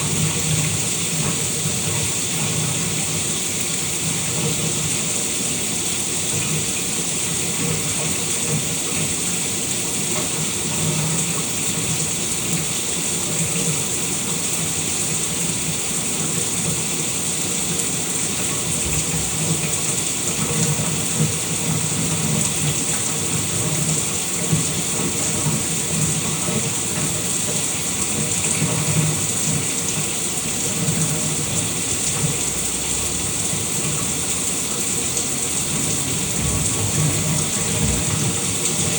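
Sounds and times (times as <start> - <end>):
shower water spraying: 16.4 - 38.9
low splashing: 35.6 - 38.9.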